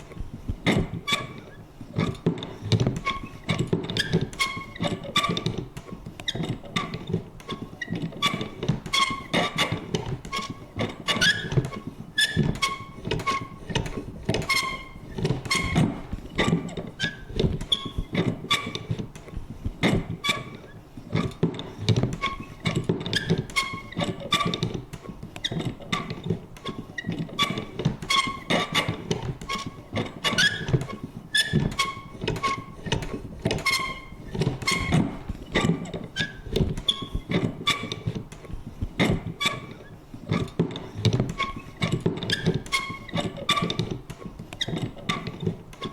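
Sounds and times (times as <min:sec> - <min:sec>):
paper punch clicking and thunking: 0:00.0 - 0:45.9
squeaky mechanism creaks: 0:00.0 - 0:45.9.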